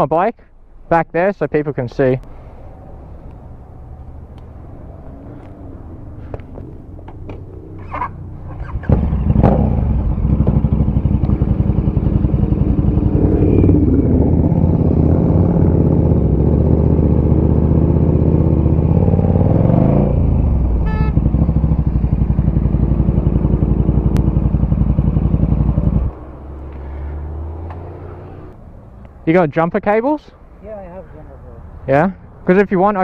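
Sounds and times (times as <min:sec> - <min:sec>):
motorcycle engine idling: 0:07.0 - 0:19.4, 0:20.2 - 0:26.1
short high beep: 0:20.8 - 0:21.2.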